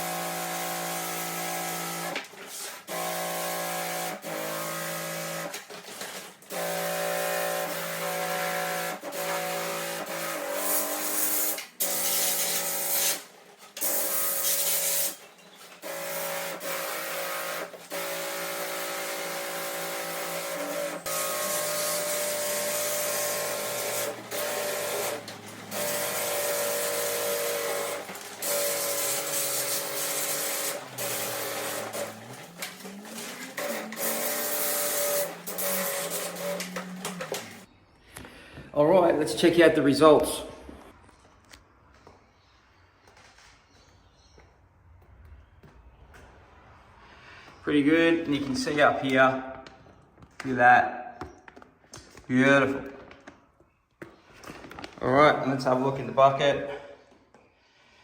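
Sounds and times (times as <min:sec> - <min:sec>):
electric pump whining: 0:00.0 - 0:37.7
spray hissing: 0:10.6 - 0:15.2, 0:15.8 - 0:37.7.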